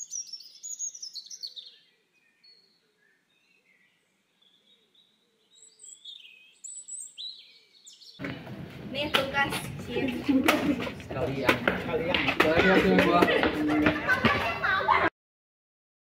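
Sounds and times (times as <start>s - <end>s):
small birds chirping: 0.0s - 10.3s.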